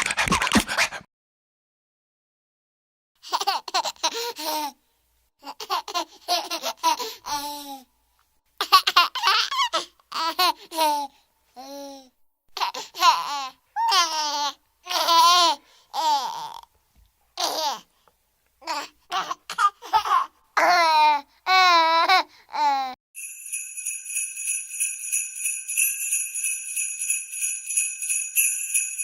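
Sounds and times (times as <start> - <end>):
baby laughing and babbling: 3.2 - 4.8, 5.4 - 7.9, 8.6 - 16.7, 17.4 - 17.9, 18.6 - 23.0.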